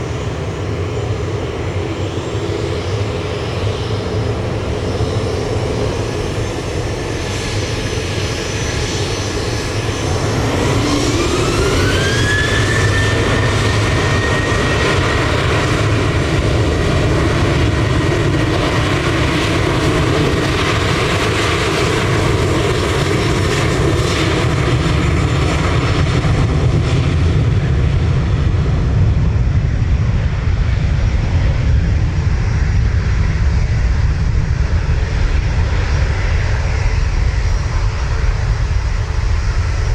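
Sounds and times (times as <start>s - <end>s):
rising engine whine: 0.0s - 24.2s, 34.0s - 39.9s
jet engines spooling up: 0.0s - 27.3s, 34.0s - 39.9s.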